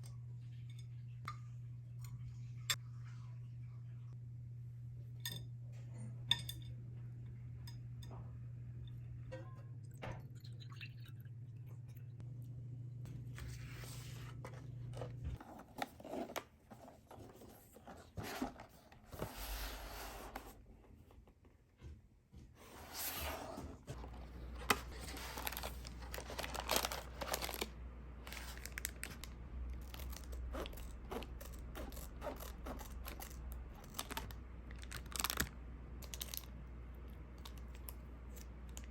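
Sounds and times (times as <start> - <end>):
low steady hum: 0.0 - 38.9
crunching and crackling: 23.9 - 38.9.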